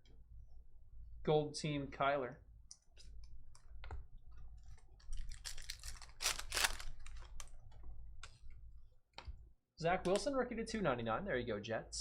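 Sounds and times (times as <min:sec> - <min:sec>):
trading cards rustling: 0:04.6 - 0:07.6.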